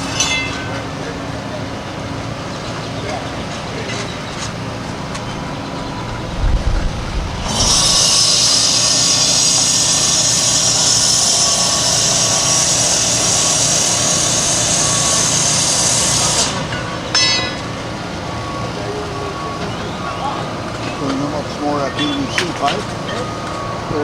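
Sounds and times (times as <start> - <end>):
loud high rushing noise: 4.9 - 13.6
low thump: 6.0 - 8.3.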